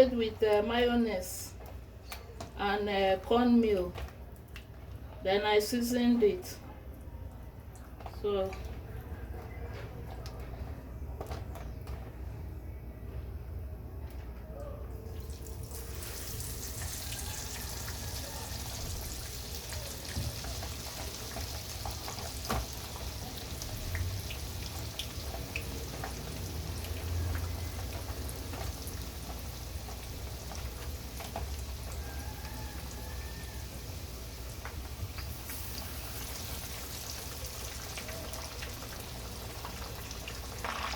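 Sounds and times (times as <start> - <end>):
fish frying in hot oil: 15.3 - 40.9.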